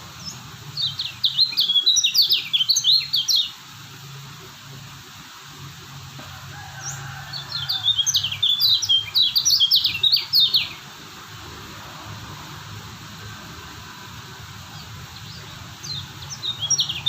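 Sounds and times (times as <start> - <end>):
bird twittering song: 0.0 - 3.6, 6.7 - 10.9, 14.7 - 17.0.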